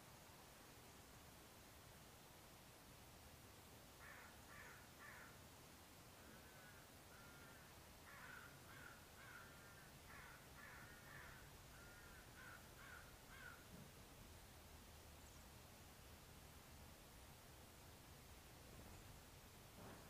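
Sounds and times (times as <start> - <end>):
faint bird calls: 4.0 - 5.4, 6.1 - 14.0.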